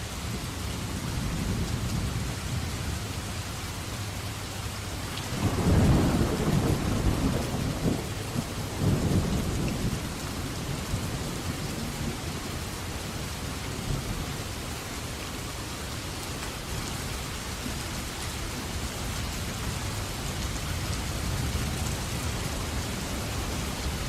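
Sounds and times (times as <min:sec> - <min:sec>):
rain falling steadily: 0:00.0 - 0:24.0
low roll of thunder: 0:05.3 - 0:12.7.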